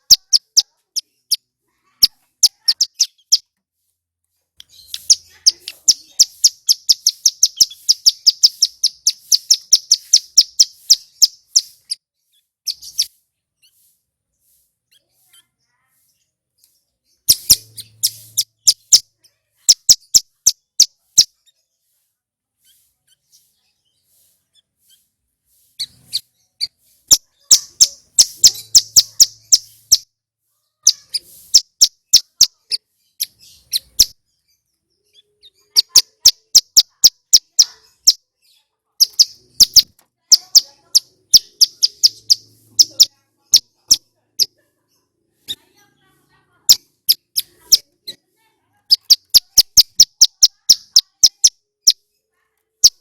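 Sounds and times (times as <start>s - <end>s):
bird singing sharp clicking notes: 4.6s - 12.0s, 16.6s - 19.0s, 39.0s - 44.0s.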